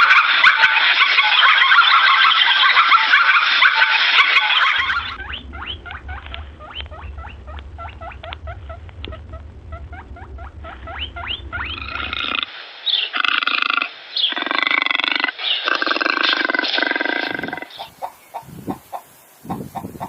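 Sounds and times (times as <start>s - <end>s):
harsh animal call: 0.0s - 20.0s
small animal squeaking: 4.4s - 12.5s
low hum: 4.8s - 13.8s.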